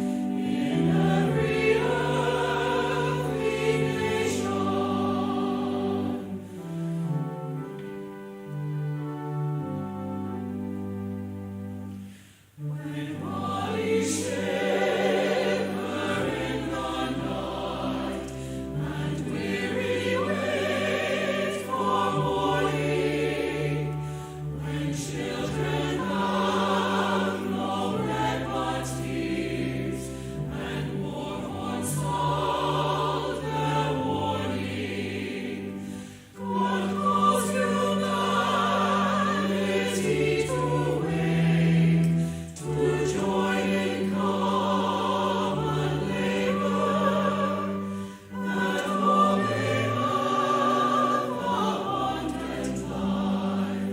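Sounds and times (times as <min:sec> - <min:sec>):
choir singing with accompaniment: 0:00.0 - 0:53.9.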